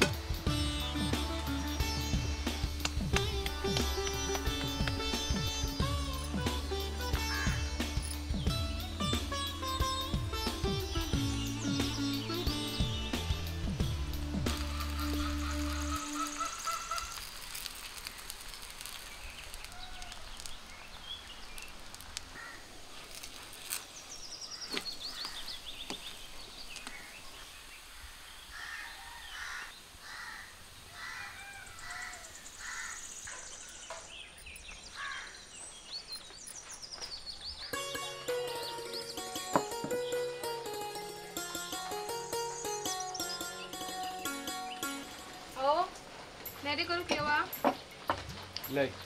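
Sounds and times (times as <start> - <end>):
music: 0.0 - 16.6, 37.7 - 49.0
faint steady hiss: 0.0 - 37.0, 37.8 - 49.0
birds chirping and calling: 0.9 - 17.3, 19.2 - 49.0.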